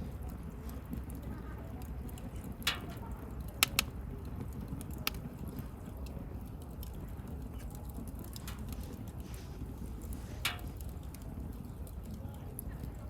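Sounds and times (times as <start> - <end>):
low rumble of burning fire: 0.0 - 13.0
wood fire crackling: 0.0 - 13.0
sharp pops from fire: 1.8 - 12.8.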